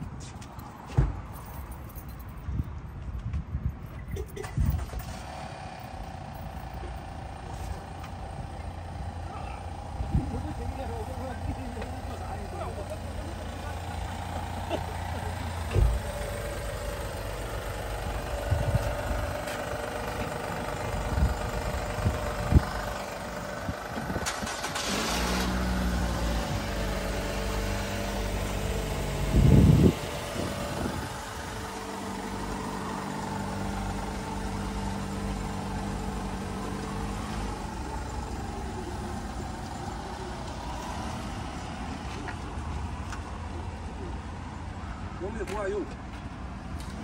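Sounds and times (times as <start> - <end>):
car engine idling: 4.8 - 45.9
low thump: 15.7 - 16.1.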